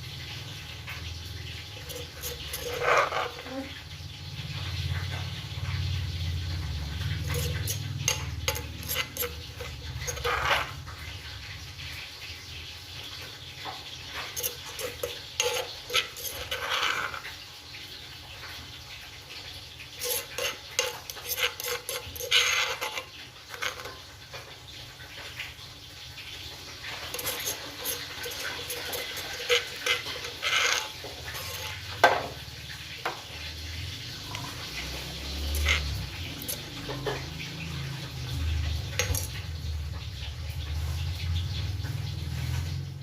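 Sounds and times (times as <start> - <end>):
utensils clinking against dishes: 1.6 - 3.8, 6.7 - 10.9, 14.1 - 17.3, 19.9 - 24.4, 26.8 - 32.4, 34.1 - 39.7.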